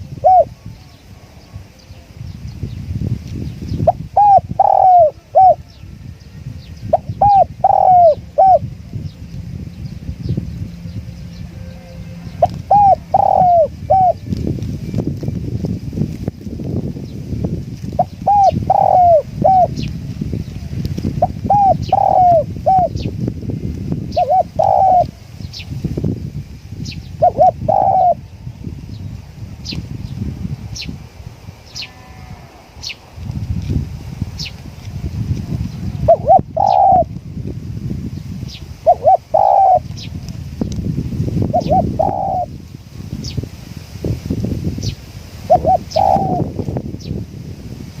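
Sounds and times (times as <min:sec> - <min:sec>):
dove cooing: 0:00.0 - 0:01.7, 0:03.8 - 0:05.7, 0:06.9 - 0:08.7, 0:12.3 - 0:14.3, 0:18.0 - 0:19.8, 0:21.2 - 0:23.1, 0:24.1 - 0:25.2, 0:27.2 - 0:28.3, 0:36.0 - 0:37.1, 0:38.8 - 0:40.2, 0:41.5 - 0:42.5, 0:45.5 - 0:46.5
wind rumble on microphone: 0:00.0 - 0:48.0.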